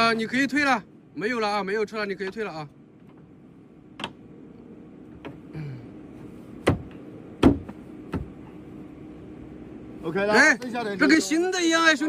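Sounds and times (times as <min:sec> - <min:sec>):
faint hum: 0:00.0 - 0:12.0
sharp knocks and clicks: 0:04.0 - 0:04.2, 0:06.6 - 0:08.4.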